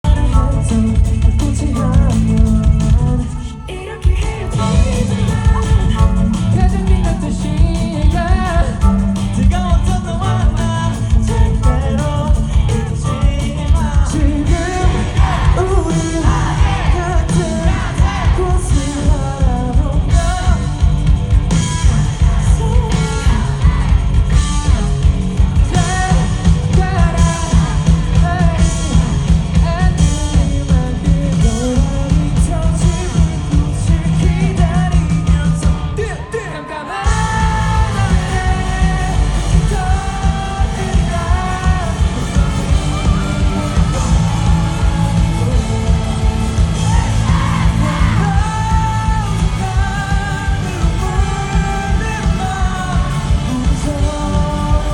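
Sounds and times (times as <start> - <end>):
lead singer: 0.0 - 54.9
live rock band playing: 0.0 - 54.9.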